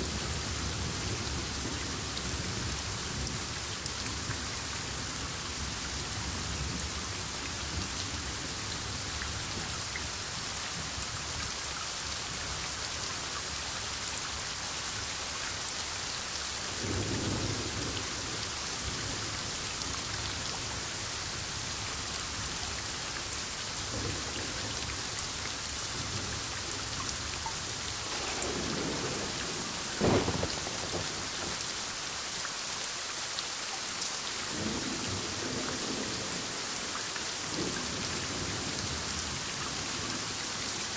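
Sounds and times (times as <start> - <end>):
heavy rain falling: 0.0 - 40.9
thunder rumbling: 28.0 - 31.7
sharp thunder clap: 28.1 - 31.6.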